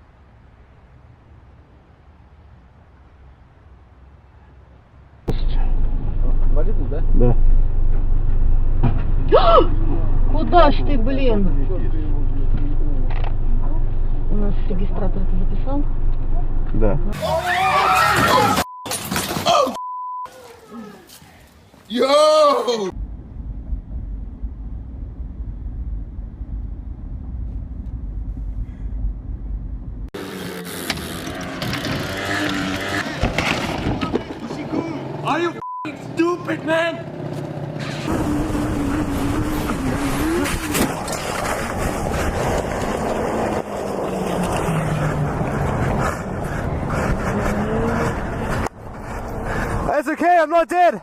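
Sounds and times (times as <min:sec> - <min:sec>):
road noise: 0:00.0 - 0:19.4, 0:20.4 - 0:51.0
moving vehicle rumble: 0:00.0 - 0:19.6, 0:22.9 - 0:50.2
vehicle engine running: 0:05.3 - 0:17.1, 0:23.0 - 0:32.6
wind noise: 0:23.0 - 0:30.1, 0:38.0 - 0:49.9.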